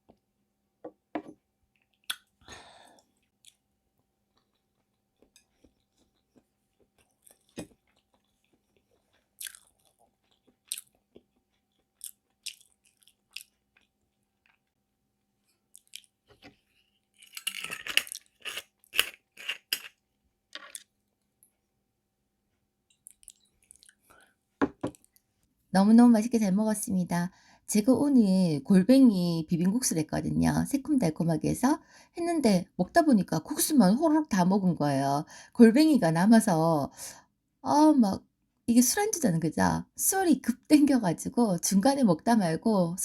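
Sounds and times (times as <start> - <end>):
wet mouth clicks: 1.8 - 2.4
crunchy smacking chewing: 4.3 - 14.8, 15.7 - 20.0, 23.0 - 24.1.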